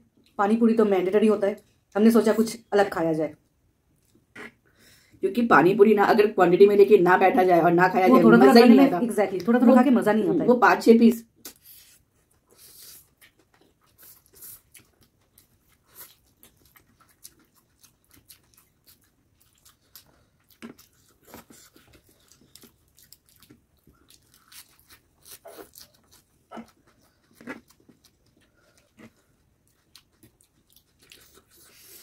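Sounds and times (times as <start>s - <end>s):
chewing and biting: 12.3s - 32.0s.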